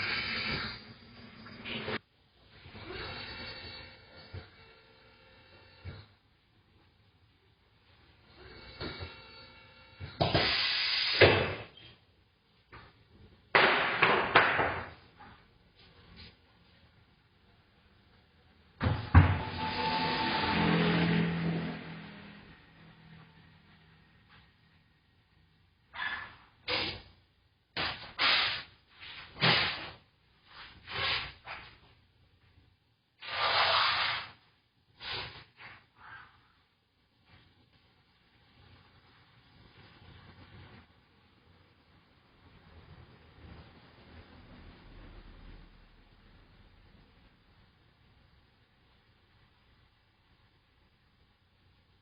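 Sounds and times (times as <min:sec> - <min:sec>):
compressed air hissing: 0:00.0 - 0:01.0, 0:10.2 - 0:11.7, 0:27.8 - 0:30.0, 0:33.2 - 0:34.4.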